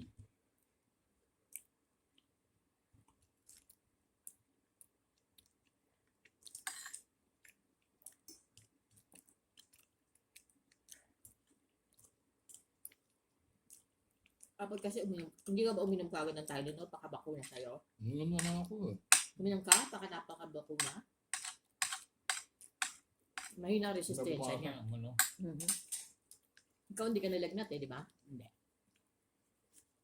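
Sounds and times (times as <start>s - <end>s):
crunch: 3.0s - 14.6s
person chewing: 3.3s - 14.6s.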